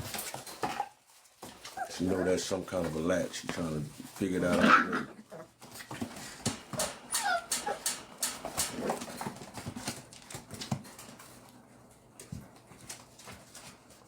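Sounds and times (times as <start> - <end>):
puppy whine: 1.6 - 2.4, 6.8 - 8.0
puppies whimpering and yipping: 1.6 - 2.5, 6.8 - 8.1.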